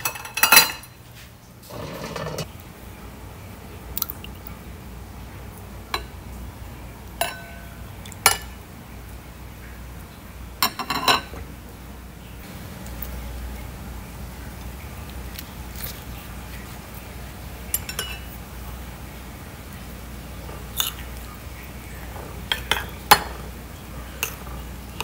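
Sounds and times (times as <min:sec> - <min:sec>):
metal spoon clinking on ceramic bowls: 0:07.2 - 0:07.6, 0:17.7 - 0:18.3, 0:22.5 - 0:23.4.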